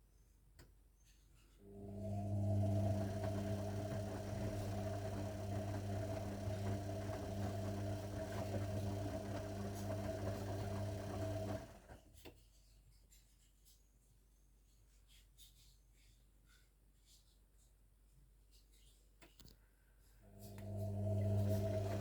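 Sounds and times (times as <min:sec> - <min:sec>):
washing machine humming: 0:01.7 - 0:12.1, 0:20.3 - 0:22.0.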